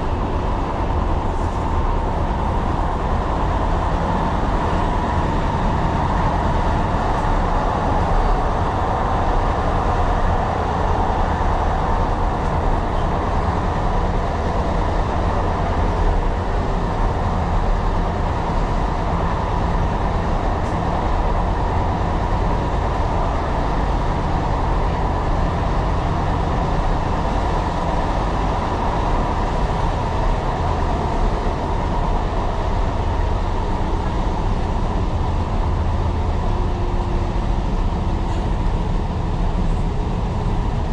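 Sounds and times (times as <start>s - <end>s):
train wheels rumbling on rails: 0.0s - 40.9s.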